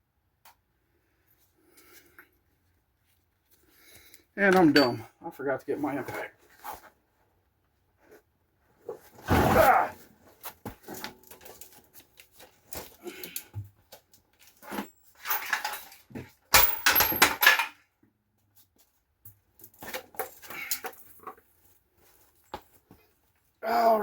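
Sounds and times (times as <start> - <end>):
metal tools clinking: 4.5 - 5.1, 14.6 - 17.8.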